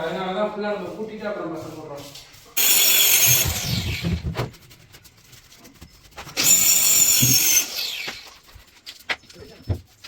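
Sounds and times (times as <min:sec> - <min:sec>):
power tool motor whining: 0:02.6 - 0:04.3, 0:06.4 - 0:08.4.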